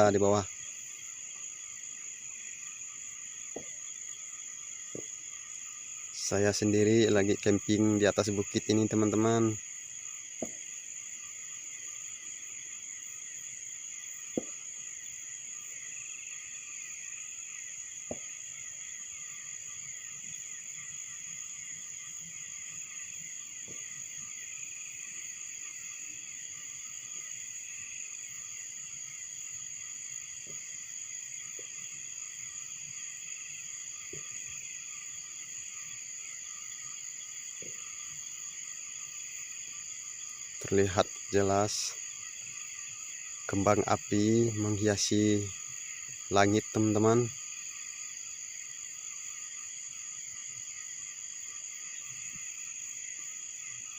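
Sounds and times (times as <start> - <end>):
crickets and insects trilling: 0.0 - 53.9
distant fireworks thuds: 3.4 - 4.0, 4.8 - 5.5, 10.3 - 10.9, 14.2 - 15.0, 18.0 - 18.5, 23.6 - 24.2, 30.4 - 30.7, 34.0 - 34.6, 37.6 - 37.9.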